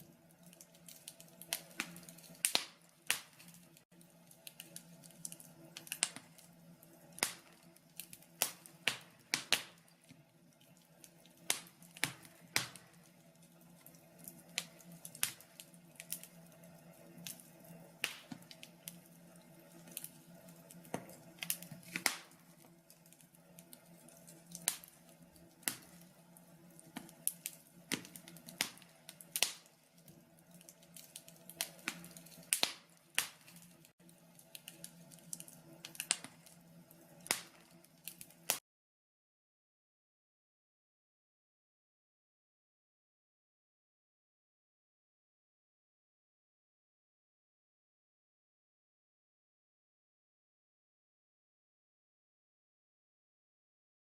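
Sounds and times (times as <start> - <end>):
faint steady hum: 0.0 - 38.6
logs crackling and popping: 0.0 - 38.6.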